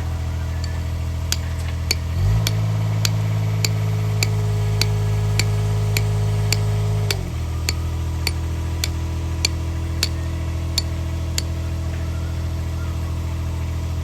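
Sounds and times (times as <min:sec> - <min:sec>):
engine idling and revving: 0:00.0 - 0:14.0
sharp regular ticking: 0:00.6 - 0:10.2.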